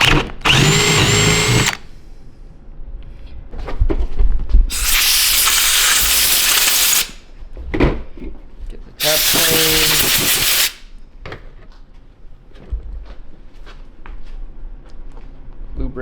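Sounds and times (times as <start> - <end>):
power drill whining: 0.0 - 1.8, 4.7 - 7.2, 9.0 - 10.8
loud hissing: 4.7 - 7.2, 9.0 - 10.8.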